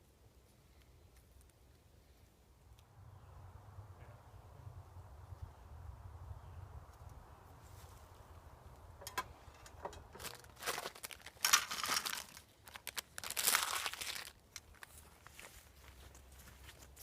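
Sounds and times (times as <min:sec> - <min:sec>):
material crinkling and rustling: 0:09.0 - 0:17.0.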